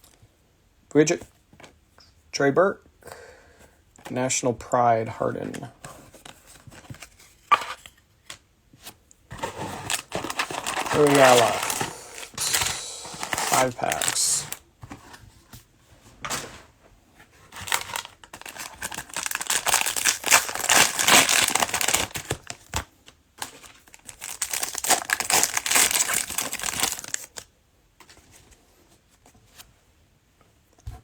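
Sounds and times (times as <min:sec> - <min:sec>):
cellophane wrappers crinkling and tearing: 0:09.4 - 0:14.6, 0:17.5 - 0:27.5.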